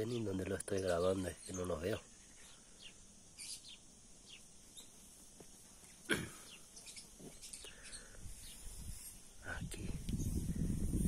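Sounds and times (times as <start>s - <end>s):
high bird chirps: 0.8s - 5.0s, 6.4s - 9.2s.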